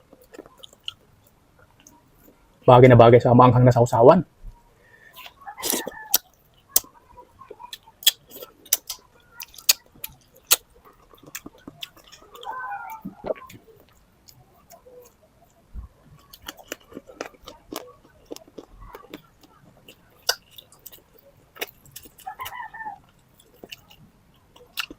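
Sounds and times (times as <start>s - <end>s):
person chewing food: 0.0s - 2.4s, 5.1s - 24.9s
mouth clicks and smacks: 7.7s - 15.6s, 16.2s - 22.5s.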